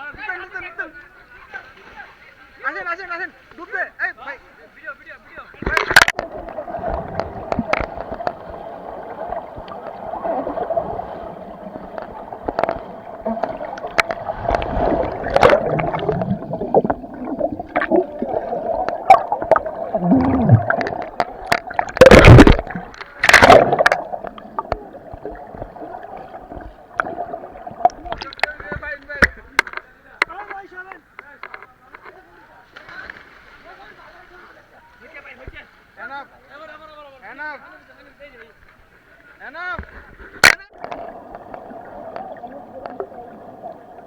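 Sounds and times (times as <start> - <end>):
water gurgling and splashing: 5.7 - 28.8, 40.7 - 44.0
loud splashes: 6.0 - 28.4.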